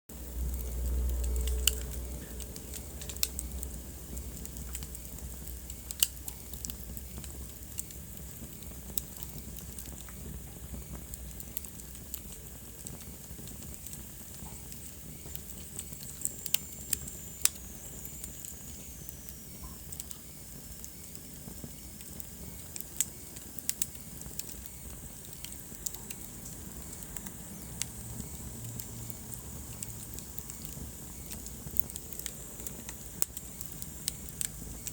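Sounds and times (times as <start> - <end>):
wood fire crackling: 0.1 - 34.9.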